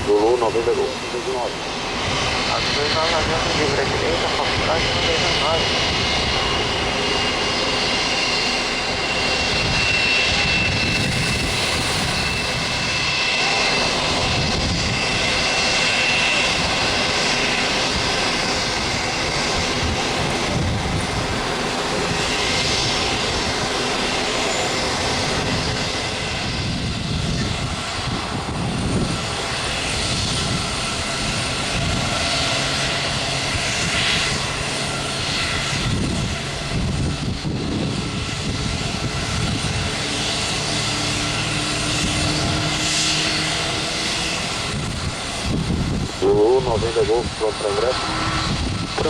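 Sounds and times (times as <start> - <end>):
jet engines running: 0.0 - 49.0.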